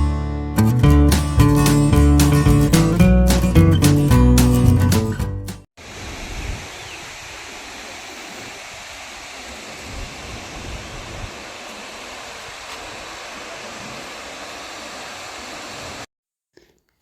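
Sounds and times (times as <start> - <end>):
waterfall roaring: 5.8 - 16.1.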